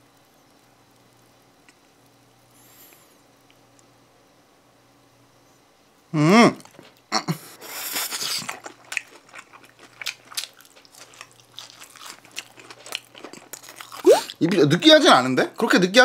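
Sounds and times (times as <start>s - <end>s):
wavering vocal hum: 6.1s - 7.4s
soft chewing with mouth clicks: 6.6s - 14.6s
cheese stretching noise: 13.5s - 14.5s.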